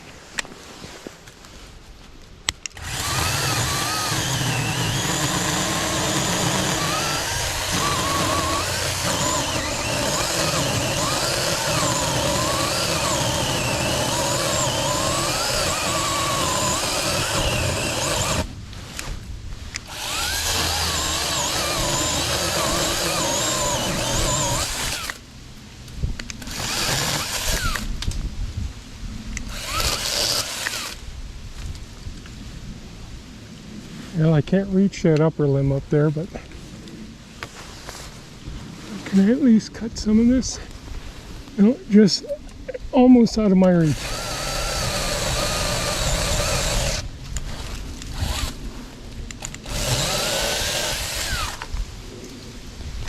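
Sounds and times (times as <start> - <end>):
chainsaw cutting wood: 2.7 - 18.5, 19.8 - 25.2, 26.4 - 27.9, 29.4 - 31.0, 43.9 - 48.6, 49.3 - 51.8.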